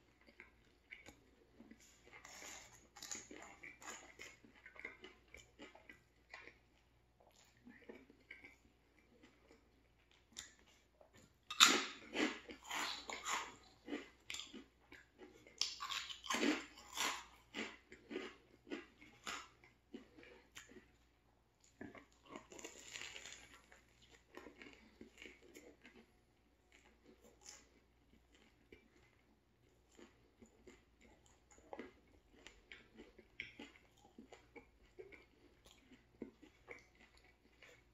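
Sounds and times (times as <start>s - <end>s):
soft chewing of sandwich: 0.0s - 37.9s
potato chips crunching: 0.1s - 6.8s, 11.5s - 21.0s, 21.7s - 26.1s.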